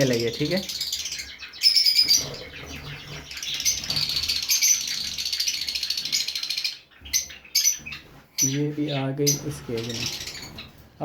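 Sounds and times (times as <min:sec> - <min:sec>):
finches chirping: 0:00.0 - 0:11.0.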